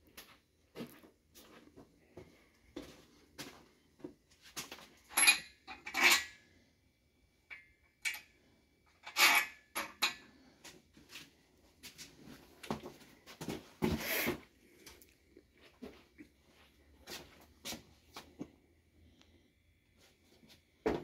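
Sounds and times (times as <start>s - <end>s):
metal tools clinking and clattering: 5.0s - 6.4s, 8.9s - 10.4s.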